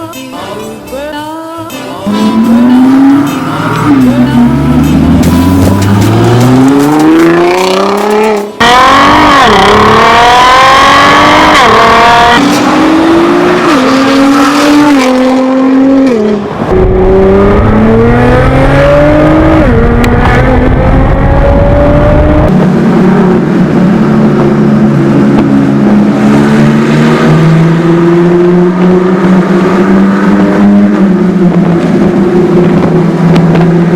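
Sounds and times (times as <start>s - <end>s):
car engine accelerating hard: 2.1s - 33.9s.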